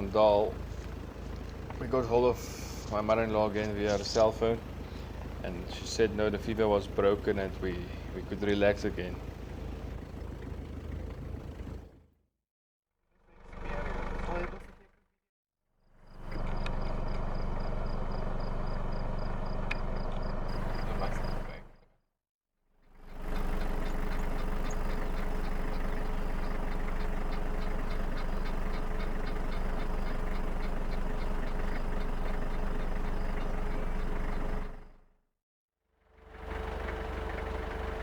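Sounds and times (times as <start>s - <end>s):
vehicle engine and road noise: 0.0s - 12.2s, 13.0s - 15.0s, 15.9s - 21.8s, 22.8s - 35.1s, 36.0s - 38.0s
fast even ticking: 23.2s - 34.8s.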